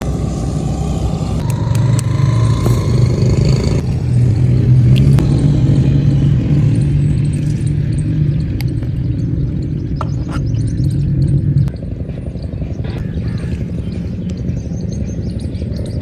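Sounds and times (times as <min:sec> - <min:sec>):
car engine low hum: 0:00.0 - 0:12.1.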